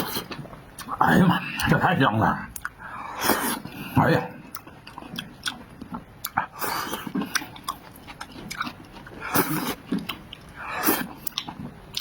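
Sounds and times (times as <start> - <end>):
mouth clicks and lip smacks: 2.5 - 2.8
wet chewing: 4.5 - 12.0.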